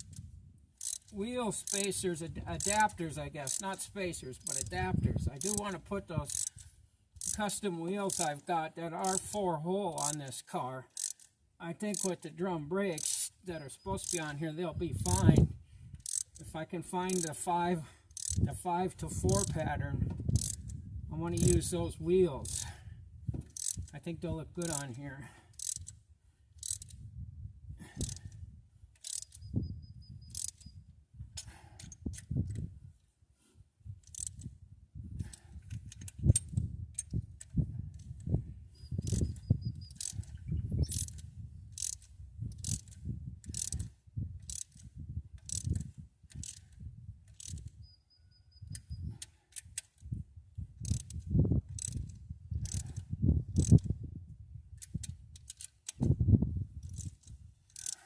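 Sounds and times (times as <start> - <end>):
socket ratchet clicking: 0.8 - 2.0, 2.6 - 3.8, 4.4 - 4.7, 5.4 - 6.6, 7.2 - 7.4, 8.1 - 8.4, 9.0 - 9.4, 10.0 - 10.2, 10.9 - 11.3, 11.9 - 12.2, 13.0 - 13.4, 14.0 - 14.4, 15.0 - 15.4, 16.0 - 16.4, 17.1 - 17.4, 18.1 - 18.5, 19.3 - 19.5, 20.3 - 20.8, 21.4 - 21.6, 22.4 - 22.6, 23.5 - 23.9, 24.6 - 24.9, 25.5 - 26.0, 26.6 - 27.0, 28.0 - 28.3, 29.0 - 29.5, 30.3 - 30.7, 34.0 - 34.5, 38.9 - 47.8, 48.6 - 50.1, 50.8 - 53.9, 54.7 - 56.1, 56.8 - 58.0.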